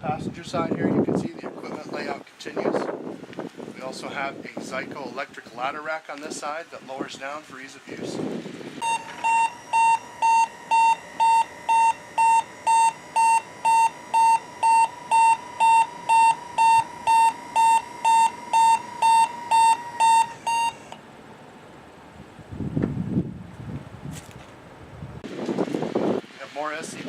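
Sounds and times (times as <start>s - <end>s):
high-pitched warning beeps: 8.8s - 21.0s.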